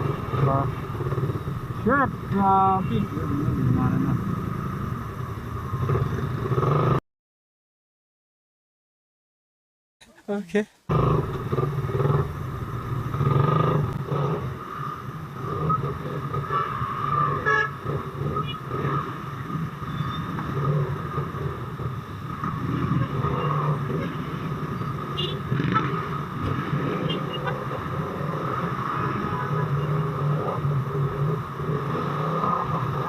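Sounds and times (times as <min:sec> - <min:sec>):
motorcycle engine running: 0:00.0 - 0:07.0, 0:10.9 - 0:17.0
surrounding traffic noise: 0:00.0 - 0:07.0, 0:10.0 - 0:33.0.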